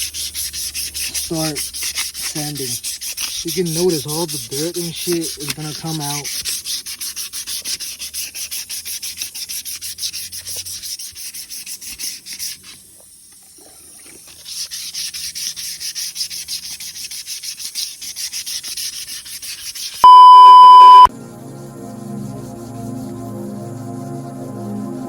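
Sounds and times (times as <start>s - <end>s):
sandpaper rubbing on metal: 0.0s - 12.8s, 14.4s - 20.0s
steady beep tone: 20.0s - 21.1s
soft music: 21.2s - 25.0s.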